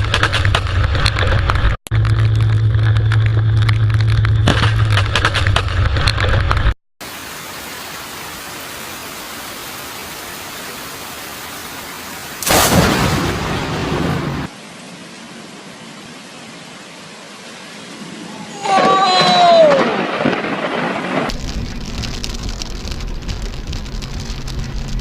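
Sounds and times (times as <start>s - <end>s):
low hum with crackling: 0.0s - 8.4s, 21.3s - 25.0s
heavy rain: 7.0s - 25.0s
loud thunderclap: 12.4s - 14.5s, 19.0s - 25.0s.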